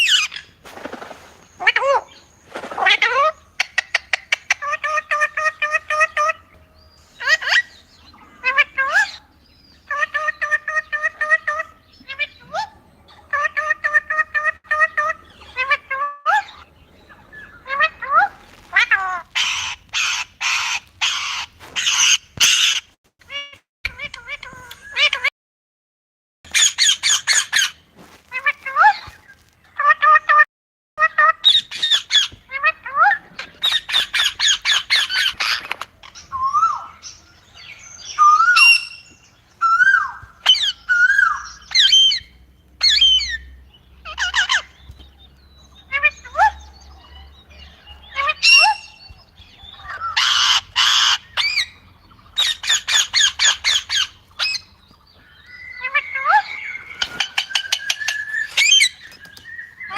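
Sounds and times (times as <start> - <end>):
parrot squawking: 17.4 - 25.3, 26.5 - 29.2, 38.1 - 44.7, 48.1 - 51.8, 52.4 - 54.7, 55.4 - 59.1
parrot whistling and chirping: 38.0 - 43.5, 52.4 - 59.9.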